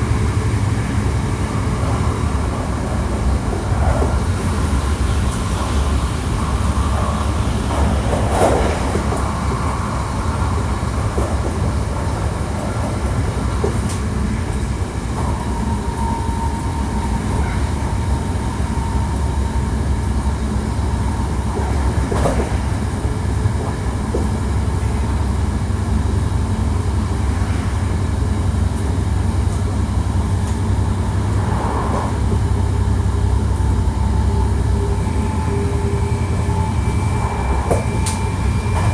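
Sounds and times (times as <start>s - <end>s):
steady train whine: 0.0s - 38.9s
train wheels rumbling on rail: 0.0s - 38.9s.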